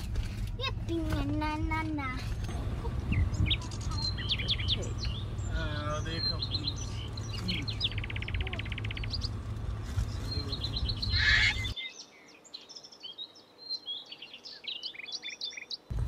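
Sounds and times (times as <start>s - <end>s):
low rumble: 2.2s - 11.7s
small birds chirping and trilling: 2.2s - 15.9s.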